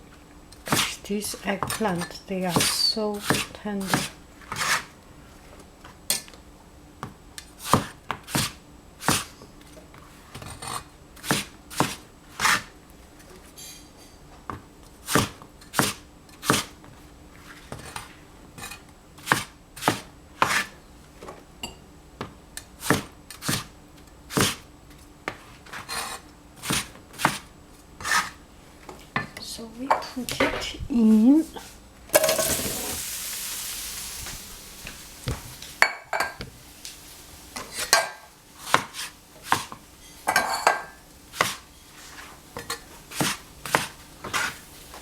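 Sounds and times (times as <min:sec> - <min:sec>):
knife chopping on cutting board: 0:02.5 - 0:04.9, 0:07.6 - 0:09.3, 0:11.2 - 0:12.7, 0:15.1 - 0:16.7, 0:19.2 - 0:20.7, 0:22.8 - 0:23.7, 0:24.3 - 0:24.6, 0:26.6 - 0:28.3, 0:38.6 - 0:39.8, 0:41.3 - 0:41.6, 0:43.1 - 0:44.6.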